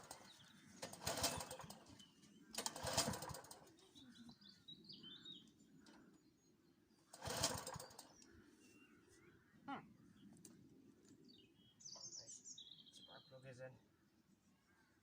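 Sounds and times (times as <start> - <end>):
lawn mower pull-start rasp: 0.0 - 3.7, 7.1 - 8.2
birds chirping faintly: 0.0 - 15.0.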